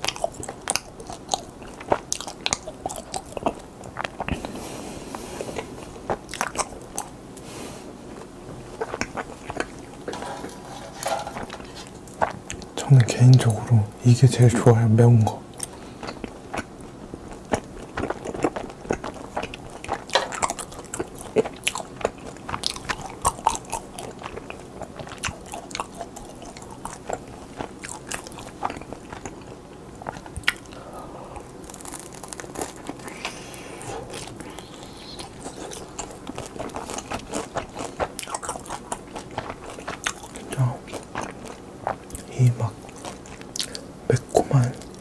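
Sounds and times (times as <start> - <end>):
wet chewing: 0.0 - 7.5, 8.1 - 13.4, 15.5 - 45.0
crunchy bites: 17.4 - 45.0.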